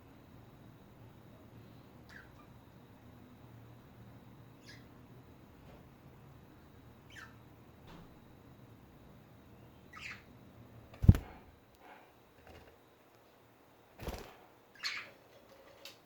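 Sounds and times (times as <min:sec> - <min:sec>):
budgerigars chirping: 0:07.1 - 0:07.4, 0:09.9 - 0:10.3, 0:14.8 - 0:15.1.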